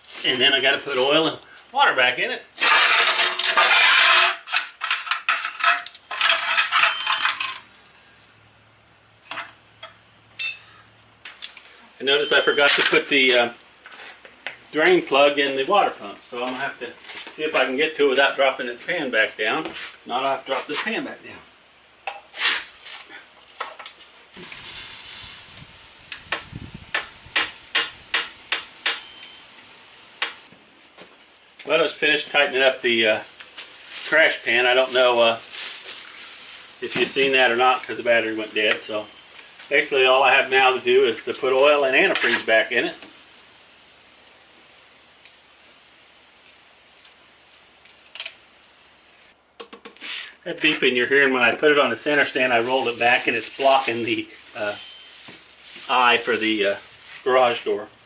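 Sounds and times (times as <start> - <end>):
soft hiss: 0.0 - 2.7, 4.3 - 58.0
metal tools clattering: 2.6 - 7.6.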